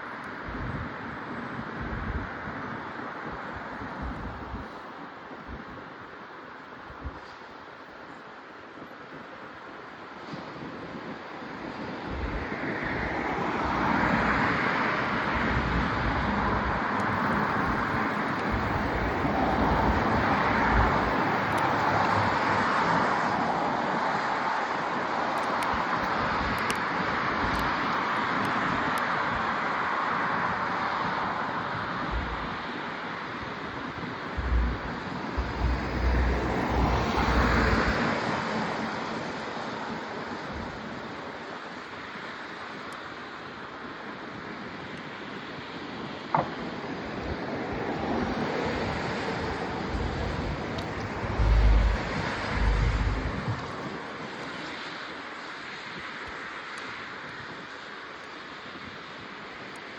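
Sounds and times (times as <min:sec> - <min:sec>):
wind and road noise: 0:00.0 - 0:59.9
wind buffeting microphone: 0:00.4 - 0:06.2, 0:10.3 - 0:29.6, 0:30.3 - 0:38.9, 0:45.8 - 0:54.6.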